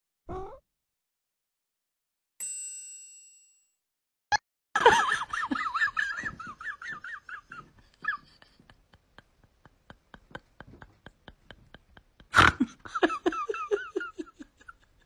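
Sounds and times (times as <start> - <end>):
cat growling and yowling: 0.3 - 0.6.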